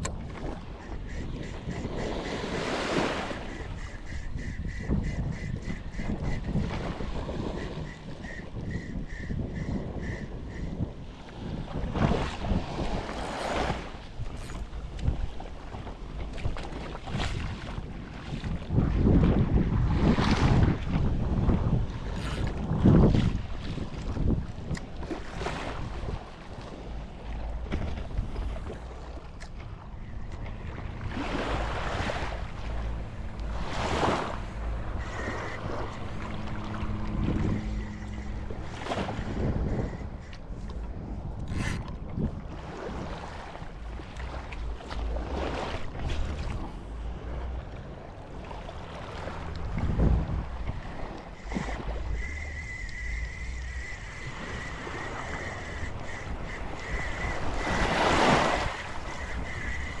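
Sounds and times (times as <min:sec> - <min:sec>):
ocean waves washing ashore: 0:00.0 - 1:00.0
wind rumbling on microphone: 0:00.0 - 1:00.0
thin steady high tone: 0:51.3 - 1:00.0.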